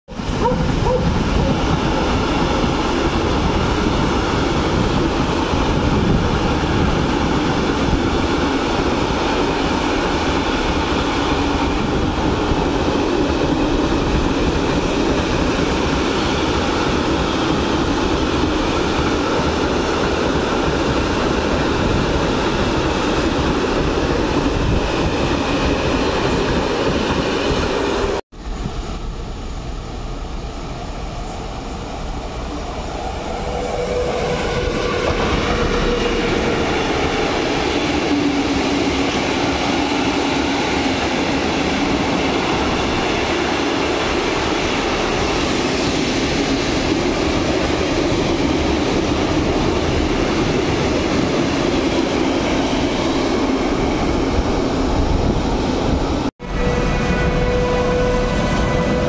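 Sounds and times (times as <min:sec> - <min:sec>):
freight train wheels rumbling: 0:00.1 - 0:59.0.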